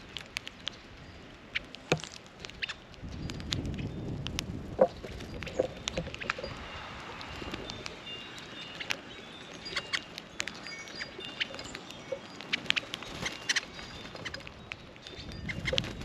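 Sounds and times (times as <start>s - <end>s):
small birds chirping: 0.0s - 16.0s
light ticks and taps: 1.6s - 6.4s.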